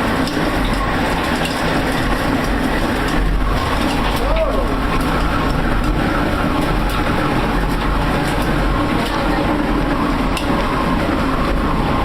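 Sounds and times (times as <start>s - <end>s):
tornado rumble: 0.0s - 12.0s.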